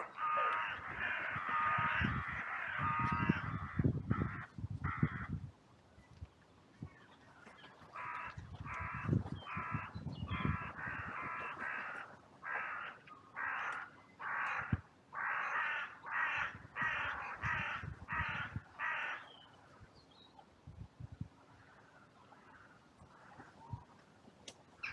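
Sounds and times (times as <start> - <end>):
crow cawing: 0.0 - 5.3, 8.0 - 19.2.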